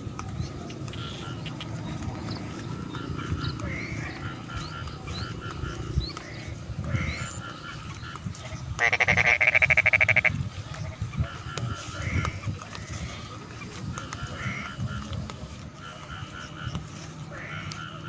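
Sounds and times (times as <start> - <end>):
frog chorus croaking: 0.0 - 18.0
loud rapid rattling frog call: 0.9 - 18.0.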